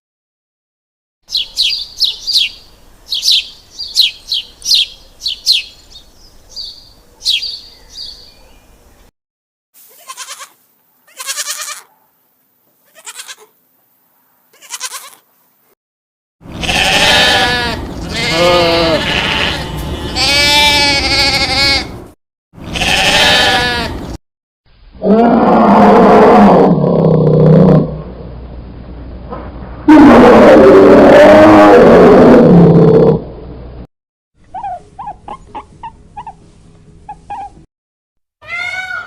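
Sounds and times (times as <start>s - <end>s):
goats bleating: 9.9s - 11.9s, 12.8s - 13.5s, 14.5s - 15.2s, 16.5s - 22.0s, 22.7s - 24.0s, 38.4s - 39.0s.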